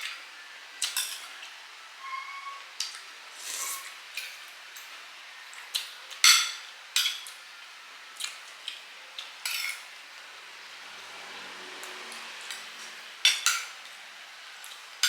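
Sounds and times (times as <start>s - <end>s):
spoons clinking on plates and bowls: 0.8s - 1.3s, 6.2s - 7.4s, 9.4s - 9.9s, 13.3s - 13.8s.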